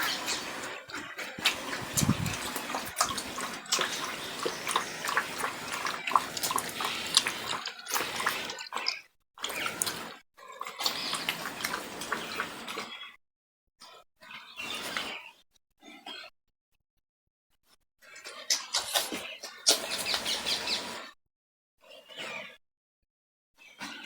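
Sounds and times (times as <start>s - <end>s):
puppies suckling: 0.0s - 10.1s, 10.7s - 12.8s.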